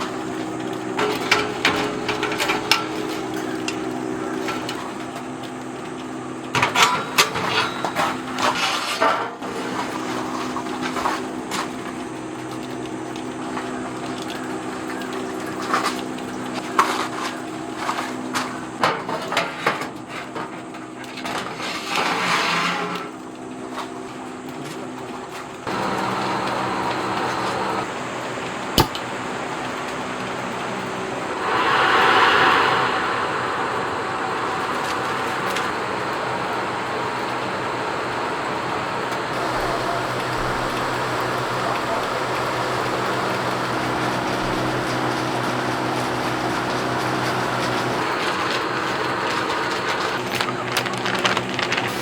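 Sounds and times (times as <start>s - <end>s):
steady low hum: 31.2s - 37.2s.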